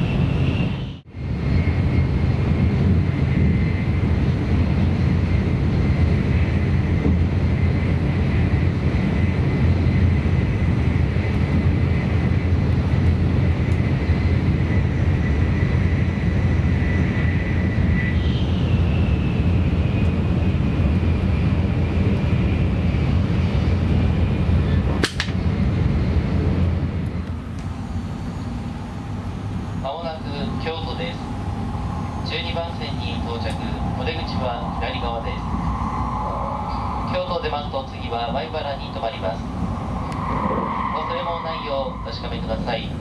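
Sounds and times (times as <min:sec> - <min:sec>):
train cabin rumble and rush: 0:00.0 - 0:43.0
faint high whine: 0:27.1 - 0:43.0.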